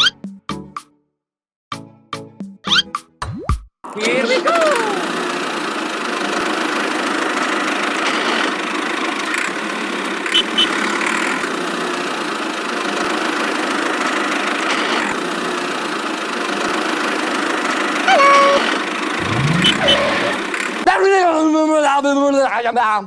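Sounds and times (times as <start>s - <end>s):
small motor running: 4.8s - 20.8s.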